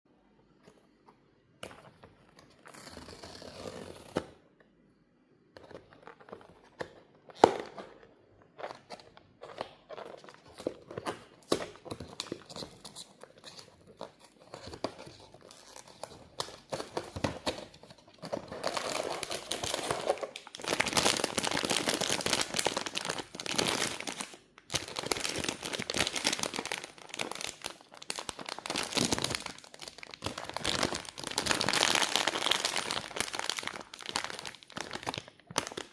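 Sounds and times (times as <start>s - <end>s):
packaging clicks and rustles: 5.6s - 35.9s
packaging crinkling and tearing: 8.6s - 35.9s.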